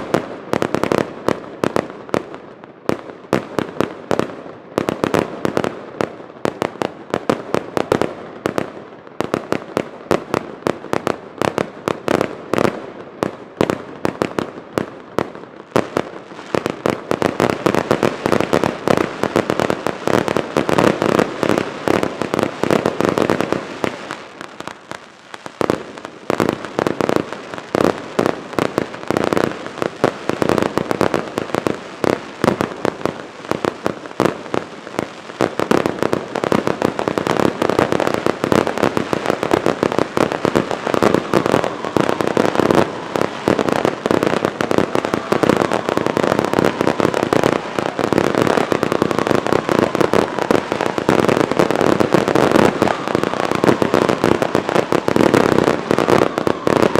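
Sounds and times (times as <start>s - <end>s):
fireworks bangs: 0.0s - 56.9s.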